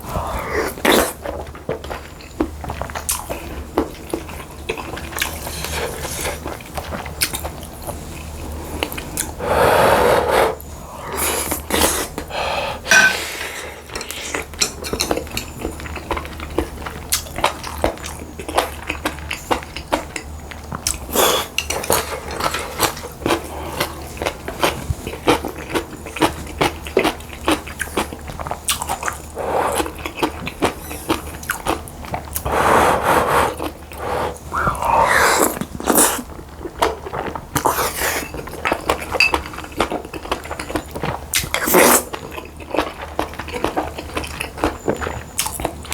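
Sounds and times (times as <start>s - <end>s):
chewing: 0.0s - 45.9s.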